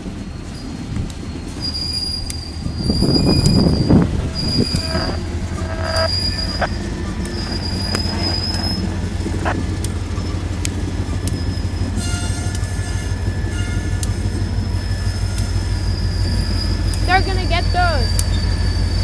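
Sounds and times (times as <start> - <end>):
train wheels rumbling on rail: 0.0 - 19.0
high-pitched wheel squeal: 0.1 - 19.0.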